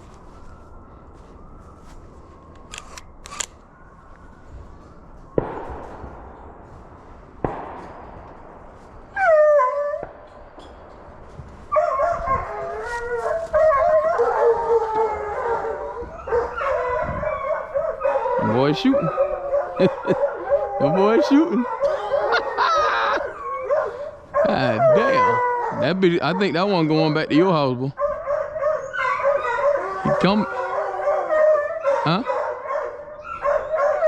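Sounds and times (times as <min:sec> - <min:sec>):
distant echoing gunshots: 0:05.2 - 0:11.3
hound howling: 0:09.1 - 0:10.4, 0:11.7 - 0:26.8, 0:28.0 - 0:34.0
hounds baying: 0:11.7 - 0:26.9, 0:27.9 - 0:34.0.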